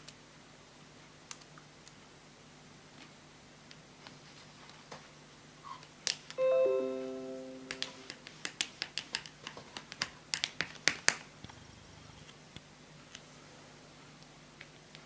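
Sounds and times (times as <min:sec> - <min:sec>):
electronic chime: 0:06.4 - 0:08.2.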